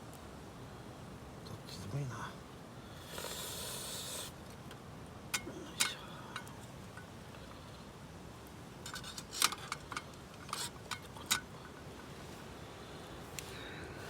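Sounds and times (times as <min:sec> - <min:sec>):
faint steady hiss: 0:00.0 - 0:14.0
camping gear clicking and clinking: 0:08.8 - 0:12.1.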